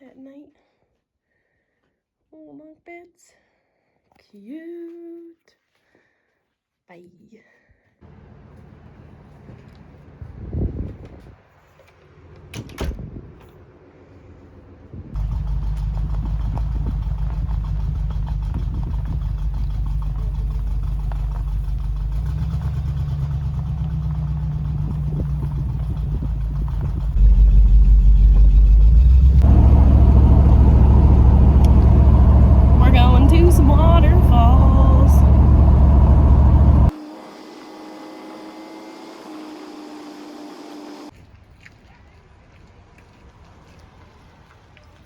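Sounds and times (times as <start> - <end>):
car engine and road rumble: 8.1 - 41.1.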